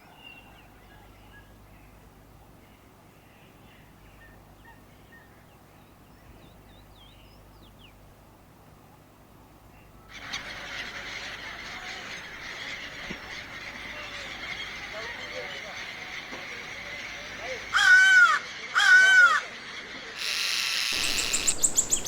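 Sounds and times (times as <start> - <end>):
bird chirps and calls: 20.2 - 22.0
loud dense hiss: 20.2 - 22.0.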